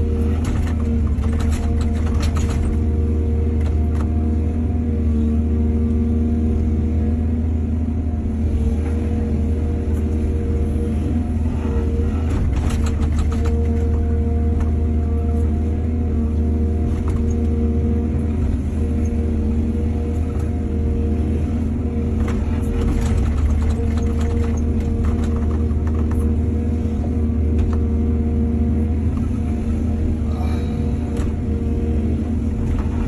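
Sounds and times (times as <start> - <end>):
excavator clattering: 0.0 - 3.0, 12.1 - 14.7, 22.1 - 26.6
diesel engine humming: 0.0 - 33.0.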